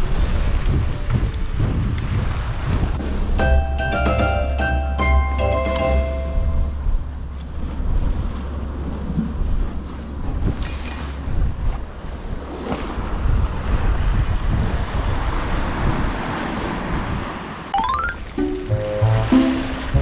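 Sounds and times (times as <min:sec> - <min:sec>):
wind buffeting microphone: 0:00.0 - 0:03.4, 0:06.7 - 0:17.4.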